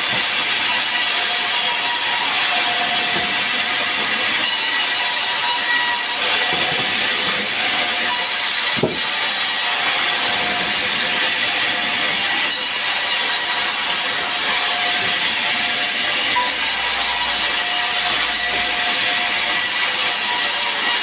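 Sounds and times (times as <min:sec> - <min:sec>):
saw cutting wood: 0:00.0 - 0:21.0
knock: 0:08.8 - 0:09.1.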